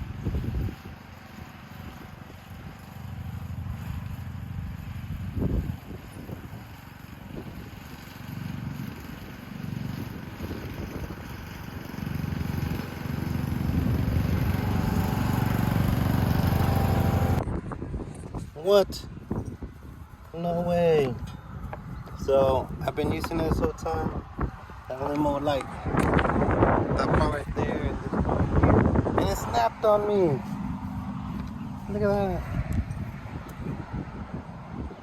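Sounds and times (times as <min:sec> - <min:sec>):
riding lawn mower engine: 0:00.0 - 0:35.0.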